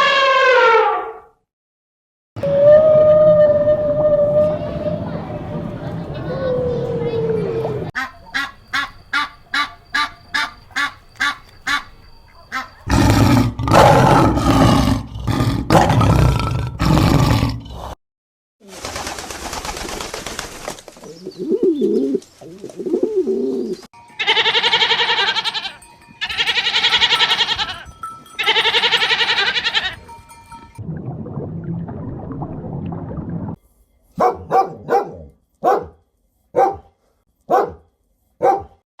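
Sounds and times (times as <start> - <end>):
low cooing: 2.4 - 7.9.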